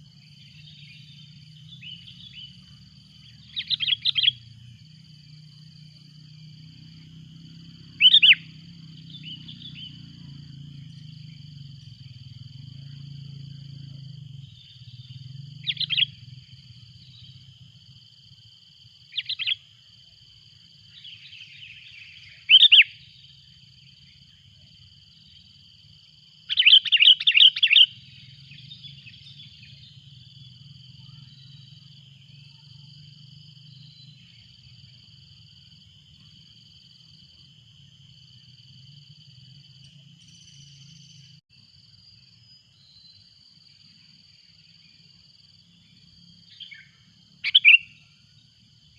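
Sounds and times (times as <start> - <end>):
high insect drone: 0.0 - 48.9
bulbul calling: 3.3 - 4.4, 7.9 - 10.0, 14.4 - 16.2, 19.1 - 19.6, 21.0 - 23.1, 26.5 - 30.1, 46.5 - 48.0.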